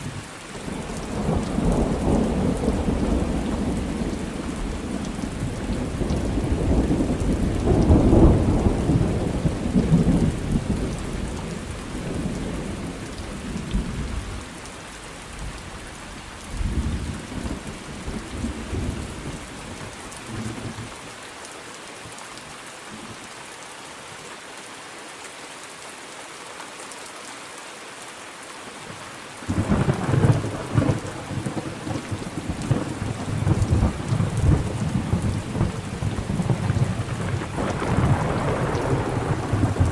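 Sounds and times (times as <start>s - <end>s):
rain falling steadily: 0.0s - 39.9s
thunder rumbling: 0.7s - 14.2s, 29.4s - 39.9s.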